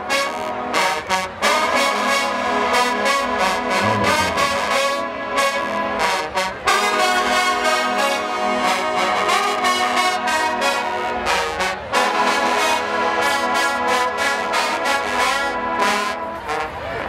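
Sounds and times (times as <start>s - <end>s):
brass fanfare: 0.0s - 17.0s.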